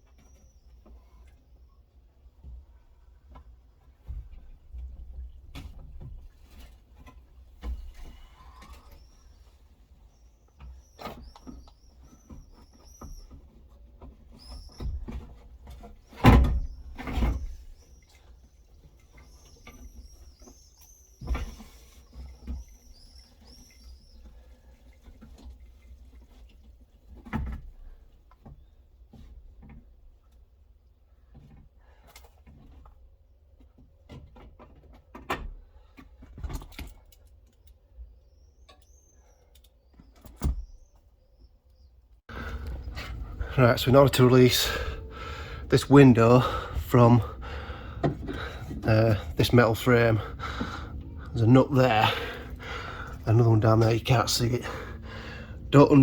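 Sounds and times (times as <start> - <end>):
bird chirping: 10.1 - 13.5, 14.3 - 15.2, 19.1 - 24.3.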